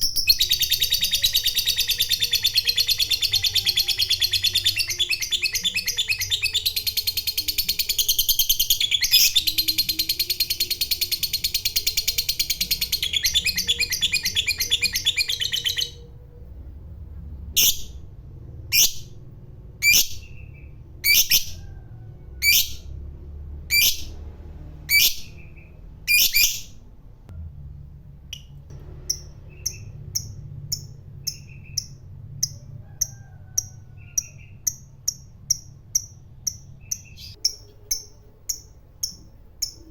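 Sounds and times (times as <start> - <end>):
lovebird chattering trill: 0.0 - 16.1
sharp bird calls: 0.0 - 16.4.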